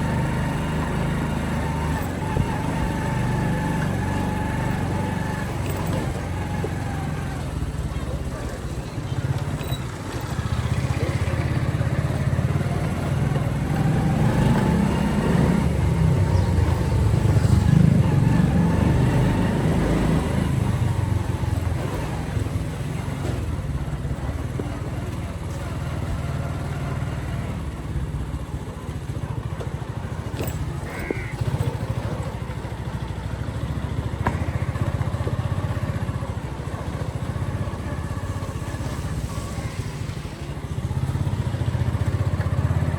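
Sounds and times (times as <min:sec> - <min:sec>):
motorcycle engine rumbling: 0:00.0 - 0:42.9.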